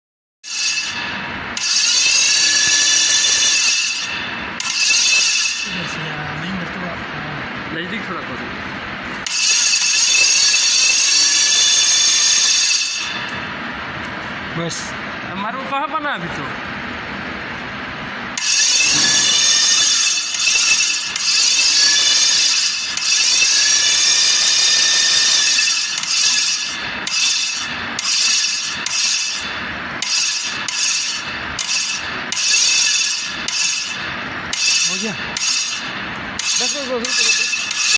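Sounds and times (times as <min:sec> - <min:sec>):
power tool whining: 0:18.4 - 0:37.9.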